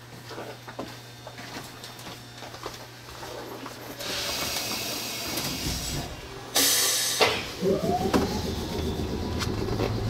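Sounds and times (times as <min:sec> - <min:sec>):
train electrical hum: 0:00.0 - 0:10.0
air hiss: 0:04.0 - 0:07.6.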